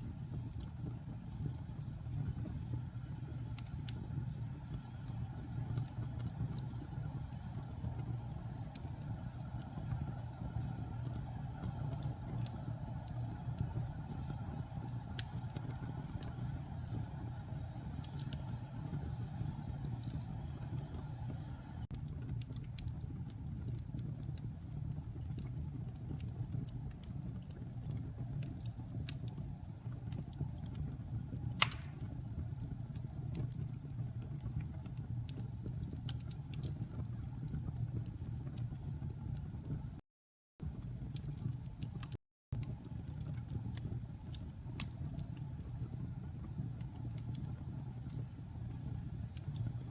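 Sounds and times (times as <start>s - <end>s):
fire crackling and popping: 0.0s - 40.0s, 40.6s - 49.9s
low rumble of flames: 0.0s - 40.0s, 40.6s - 49.9s
sharp loud pop: 31.6s - 32.0s.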